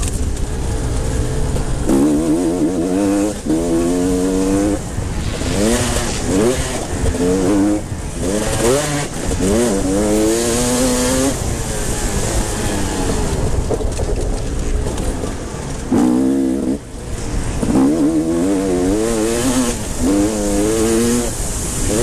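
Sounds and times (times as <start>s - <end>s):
drone of motorcycles: 0.0s - 22.0s
motocross engines revving past: 0.4s - 13.7s, 14.5s - 22.0s.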